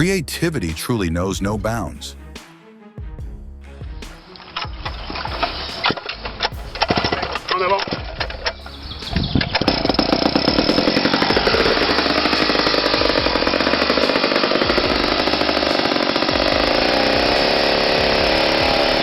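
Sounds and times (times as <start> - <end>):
chainsaw engine at high revs: 4.6 - 19.0.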